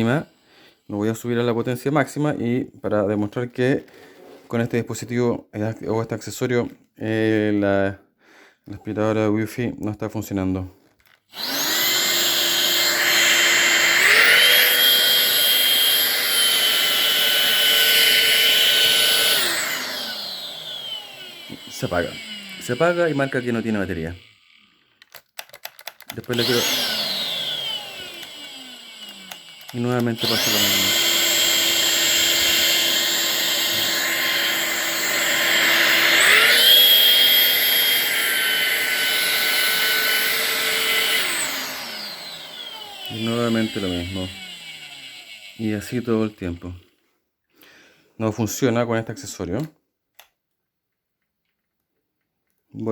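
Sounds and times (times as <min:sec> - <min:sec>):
vacuum cleaner motor whining: 0:11.3 - 0:25.0, 0:26.1 - 0:46.7.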